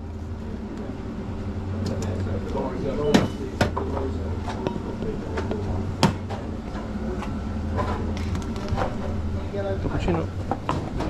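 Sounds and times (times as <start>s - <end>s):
low machine hum: 0.0s - 11.0s
faint voices: 0.4s - 7.4s
cups clinking: 3.1s - 6.3s.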